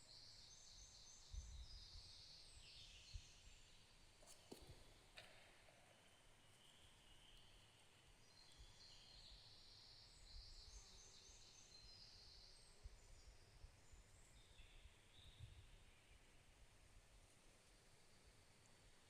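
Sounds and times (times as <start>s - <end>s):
faint birdsong: 5.7s - 16.6s.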